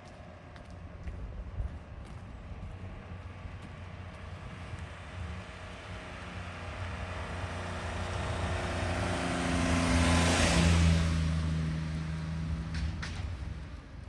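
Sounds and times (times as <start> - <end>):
car driving past: 5.1 - 14.0.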